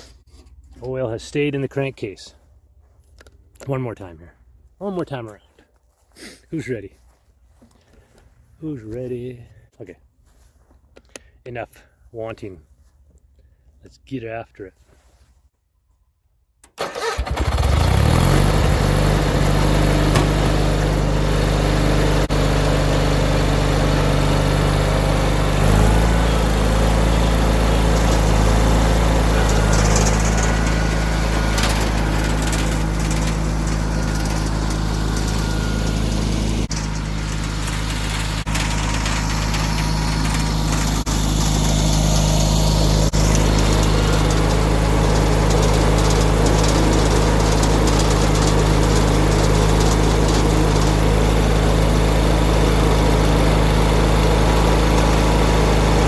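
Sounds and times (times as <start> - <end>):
garden tractor engine starting and running: 0.0 - 13.7, 16.6 - 56.0.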